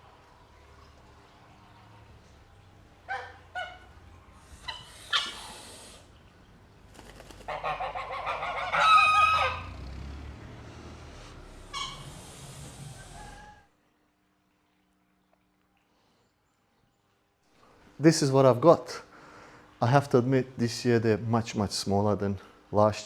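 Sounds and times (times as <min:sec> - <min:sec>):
poultry calling: 0:03.0 - 0:06.2, 0:07.0 - 0:10.0, 0:11.4 - 0:13.7.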